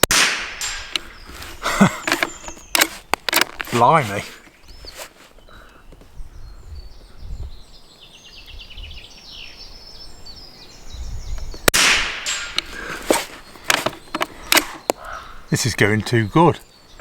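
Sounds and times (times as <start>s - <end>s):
rifle shot: 0.0s - 1.2s, 11.7s - 12.7s
small birds chirping: 0.0s - 17.0s.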